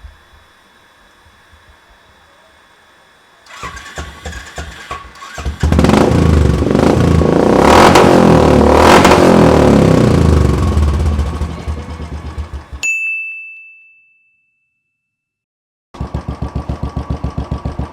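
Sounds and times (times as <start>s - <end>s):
motorcycle engine revving: 3.5s - 12.8s, 16.0s - 17.9s.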